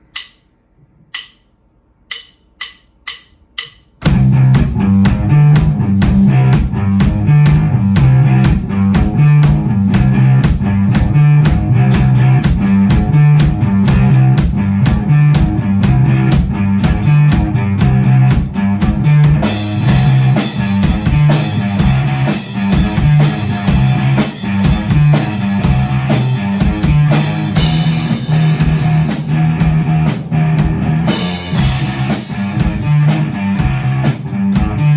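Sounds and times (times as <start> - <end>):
drum kit: 0.0 - 0.4, 1.2 - 1.5, 2.1 - 34.9
count-in clicks: 0.0 - 0.5, 1.1 - 1.5, 2.1 - 4.0
bass guitar: 4.0 - 34.9
electric guitar: 4.1 - 34.9.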